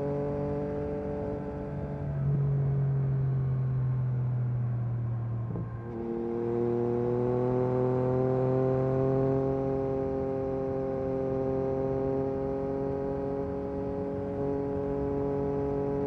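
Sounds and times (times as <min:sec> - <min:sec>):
motorcycle engine accelerating: 0:05.1 - 0:16.0.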